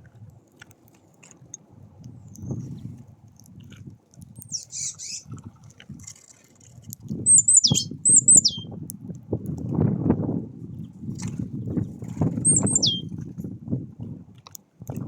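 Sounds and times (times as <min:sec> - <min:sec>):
high falling bird calls: 0:04.4 - 0:05.2, 0:07.3 - 0:08.7, 0:12.4 - 0:13.1.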